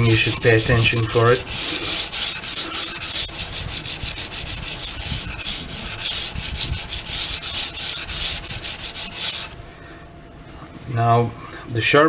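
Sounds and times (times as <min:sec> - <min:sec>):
knife scraping on sandpaper: 0:00.0 - 0:09.6.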